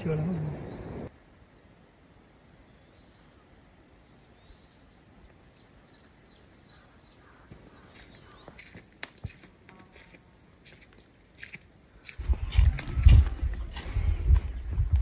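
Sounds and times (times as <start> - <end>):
small bird singing: 0.0 - 8.8.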